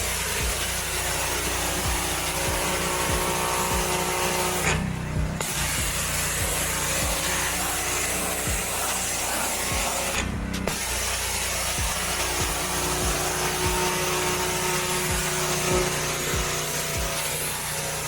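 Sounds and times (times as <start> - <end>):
high-pressure water spray hiss: 0.0 - 18.0
pressure washer engine running: 0.0 - 18.0.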